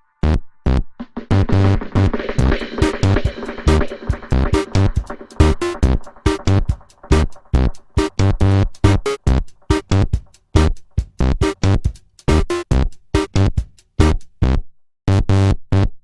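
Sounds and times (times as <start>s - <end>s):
electronic dance music: 1.2s - 10.8s, 12.3s - 13.3s.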